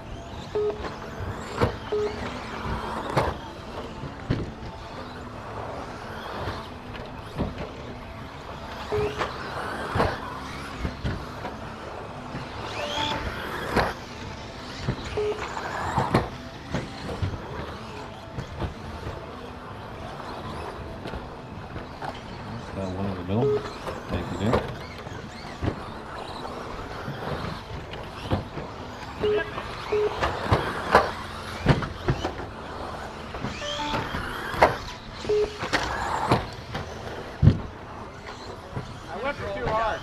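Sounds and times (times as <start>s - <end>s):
electric motor whine: 0.0s - 40.0s
short electronic beeps: 0.5s - 1.0s, 1.8s - 2.4s, 8.9s - 9.2s, 12.7s - 13.3s, 15.2s - 15.5s, 23.3s - 23.8s, 29.2s - 30.2s, 33.6s - 34.3s, 35.2s - 35.7s.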